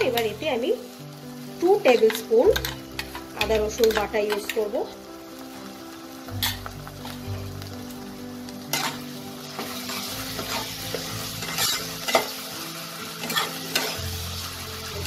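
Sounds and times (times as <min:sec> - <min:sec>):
onions sizzling in hot oil: 0:00.0 - 0:15.0
metal spatula scraping a pan: 0:01.9 - 0:04.7, 0:08.7 - 0:12.4, 0:13.0 - 0:14.6.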